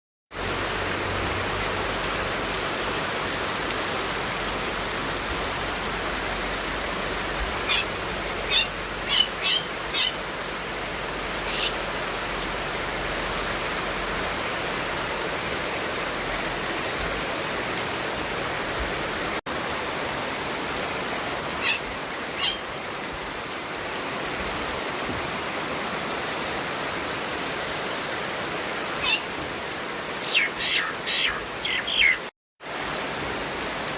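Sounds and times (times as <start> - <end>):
rain falling: 0.3 - 33.9
high bird chirps: 7.7 - 10.2, 11.5 - 11.8, 22.4 - 22.7, 29.0 - 29.3, 30.2 - 32.3.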